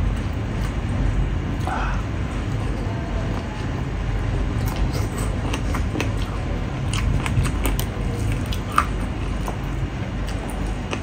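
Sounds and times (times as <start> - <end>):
chewing with wet smacks: 4.5 - 11.0.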